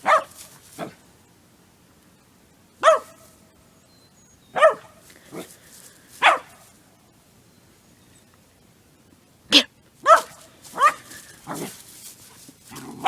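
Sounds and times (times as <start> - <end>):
dog barking: 0.0 - 1.0, 2.8 - 3.2, 4.5 - 5.5, 6.2 - 6.6, 9.6 - 11.8.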